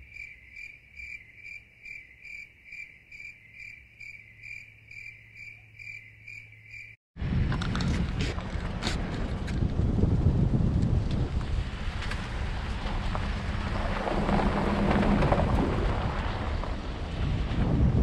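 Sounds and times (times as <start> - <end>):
cricket chirping: 0.0 - 7.0.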